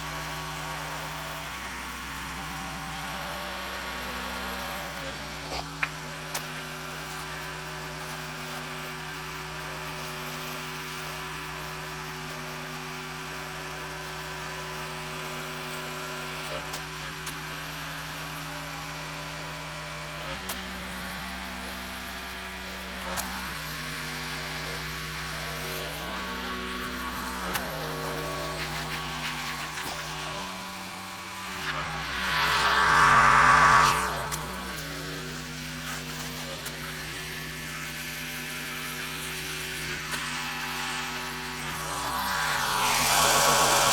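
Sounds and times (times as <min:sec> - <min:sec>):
pressure washer engine running: 0:17.6 - 0:43.9.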